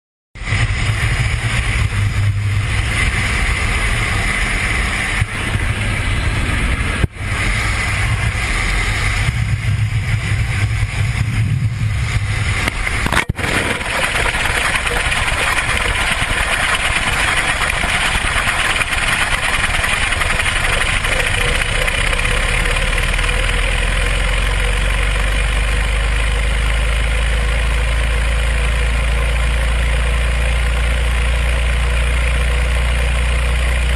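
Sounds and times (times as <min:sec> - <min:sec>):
rushing air roar: 0:00.4 - 0:23.3
aircraft engine noise: 0:00.4 - 0:33.9.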